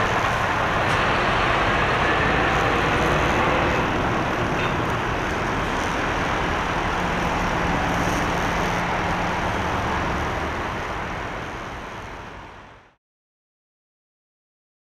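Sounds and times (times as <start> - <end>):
jet engines rushing: 0.0 - 12.9.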